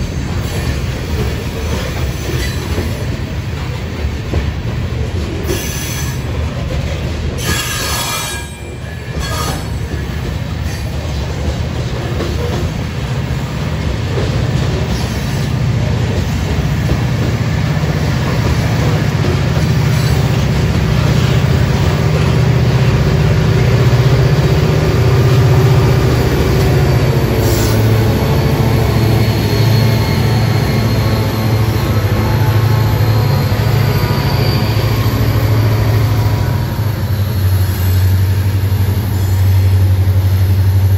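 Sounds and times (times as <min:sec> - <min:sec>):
freight train rumble and clatter: 0:00.0 - 0:40.9
faint wheel squeal: 0:29.2 - 0:36.1.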